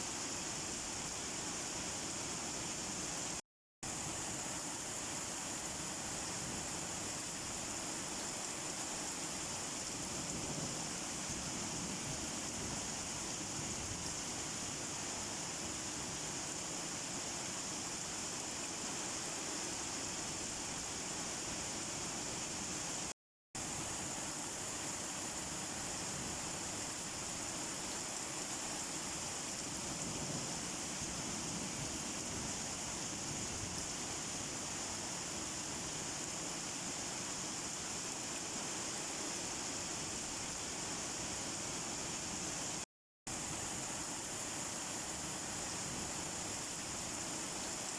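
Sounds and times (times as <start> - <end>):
steady rain falling: 25.3 - 40.1.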